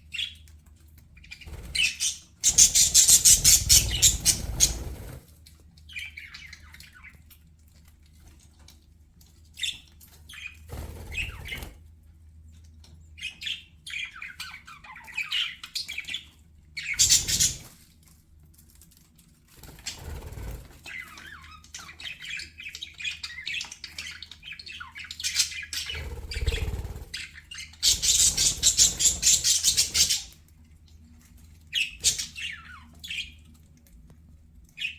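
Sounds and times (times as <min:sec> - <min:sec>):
budgerigars chirping and warbling: 0:01.2 - 0:05.2, 0:05.9 - 0:07.3, 0:09.6 - 0:11.8, 0:13.2 - 0:17.7, 0:19.6 - 0:30.4, 0:31.7 - 0:33.5.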